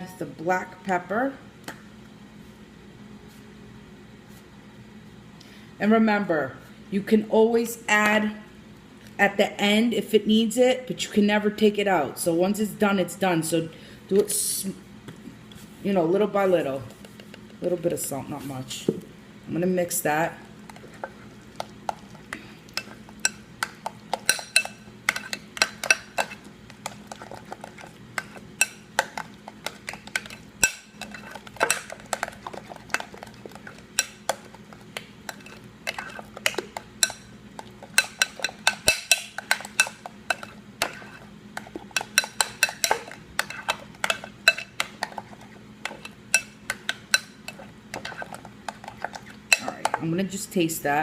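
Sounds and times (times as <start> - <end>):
utensil clinking against bowl: 21.9 - 34.5, 35.3 - 50.1.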